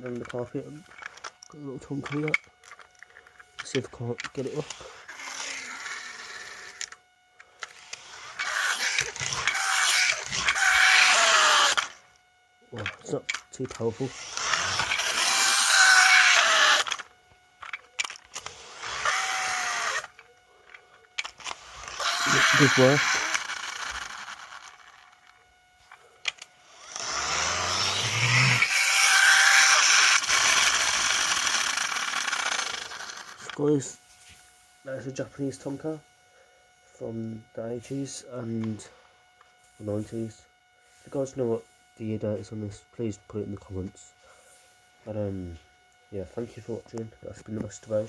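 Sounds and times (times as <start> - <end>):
spring motor whirring: 0.0 - 34.3
toy car wheels rasping on carpet: 2.1 - 7.0, 7.6 - 12.0, 14.0 - 20.3, 21.2 - 25.4, 26.3 - 33.6.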